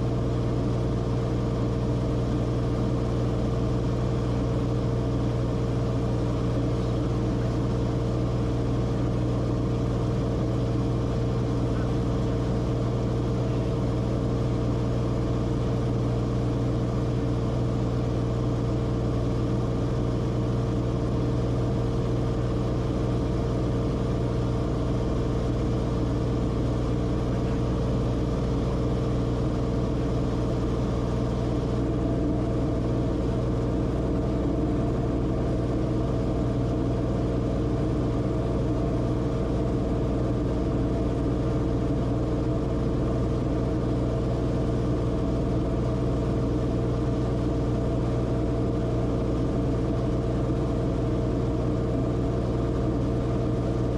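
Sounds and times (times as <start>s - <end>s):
aircraft engine and propeller drone: 0.0s - 53.9s.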